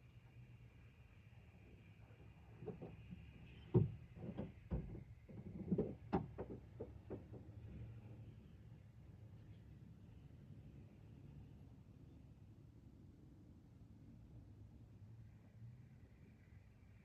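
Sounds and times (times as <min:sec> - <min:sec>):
knocks and clunks: 0:02.6 - 0:07.8.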